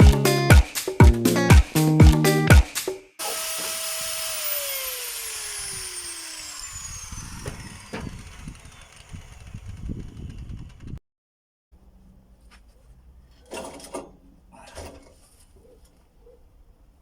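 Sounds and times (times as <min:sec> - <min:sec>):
power tool motor winding down: 0:03.2 - 0:11.0.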